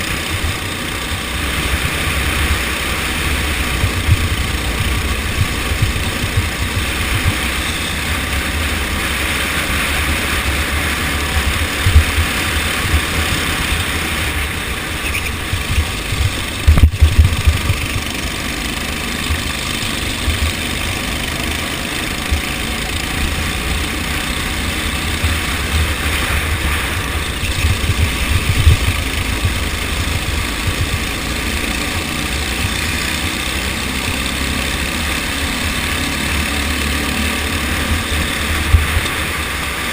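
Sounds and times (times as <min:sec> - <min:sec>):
go-kart engines running: 0:00.0 - 0:39.9
low rumble: 0:01.8 - 0:07.7, 0:09.8 - 0:21.0, 0:23.2 - 0:32.7
loud thumps: 0:15.2 - 0:17.9.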